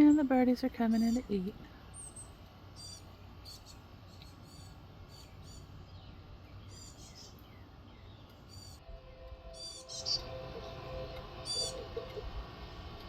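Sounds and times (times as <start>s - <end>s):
small birds chirping: 0.0s - 8.8s, 11.4s - 12.3s
steady low hum: 0.0s - 13.0s.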